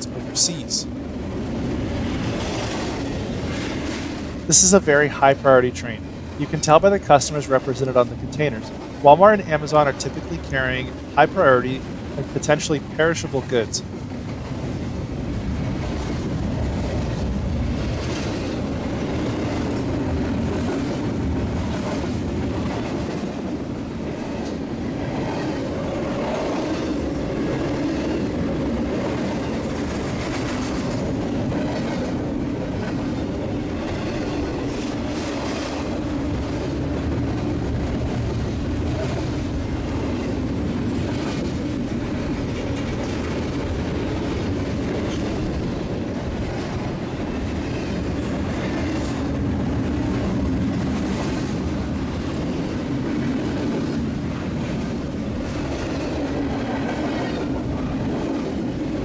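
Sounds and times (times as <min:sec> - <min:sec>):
freight train rumbling past: 0:00.0 - 0:06.7, 0:07.5 - 0:59.0
train wheels clickety-clack: 0:01.0 - 0:04.5, 0:13.8 - 0:59.0.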